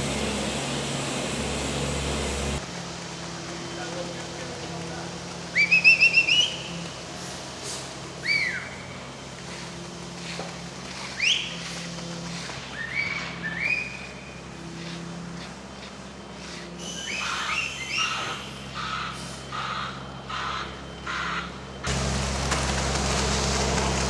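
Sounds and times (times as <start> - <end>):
low engine hum: 0.0 - 2.9, 21.9 - 24.0.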